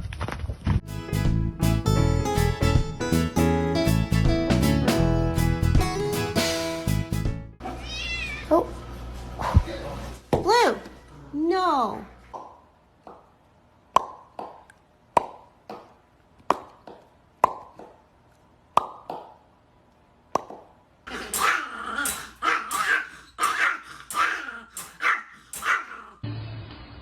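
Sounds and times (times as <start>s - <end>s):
dog barking: 21.1s - 26.2s.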